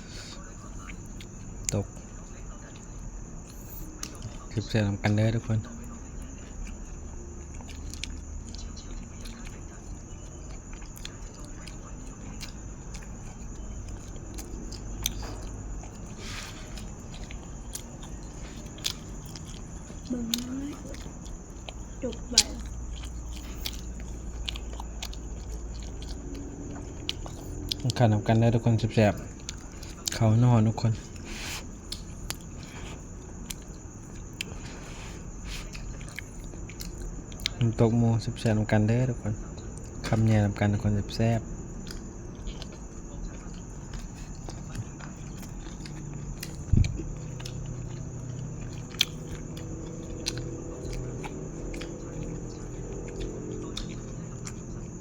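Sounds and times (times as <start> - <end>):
person chewing food: 0.0 - 55.0
wet mouth clicks and smacks: 31.8 - 34.6, 41.8 - 55.0.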